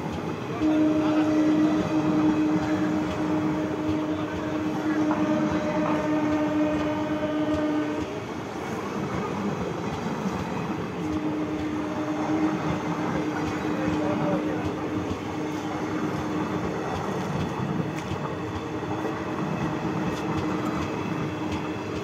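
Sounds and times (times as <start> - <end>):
long steady tone: 0.0 - 9.6, 10.2 - 16.9
train wheels rumbling and rattling: 0.0 - 22.0.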